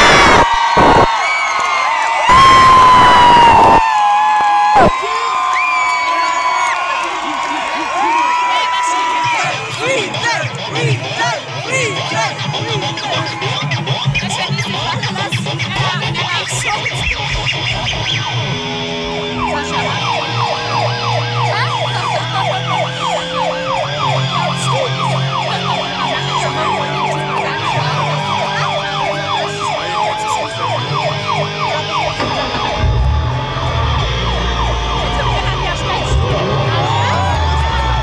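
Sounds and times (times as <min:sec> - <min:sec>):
siren-like whoop: 0:00.0 - 0:09.5, 0:19.2 - 0:38.0
synth music with heavy bass: 0:09.3 - 0:38.0.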